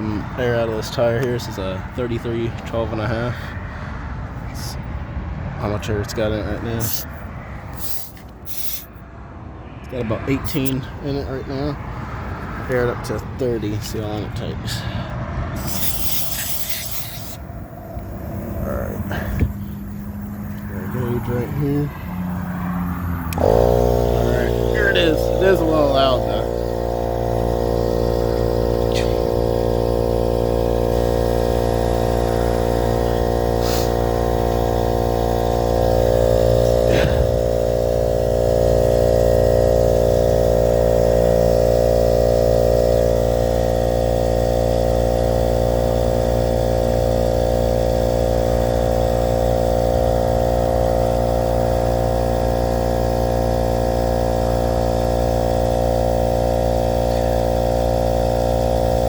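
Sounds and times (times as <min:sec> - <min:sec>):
air compressor running: 0:00.0 - 0:05.3, 0:06.4 - 0:09.1, 0:10.3 - 0:59.0.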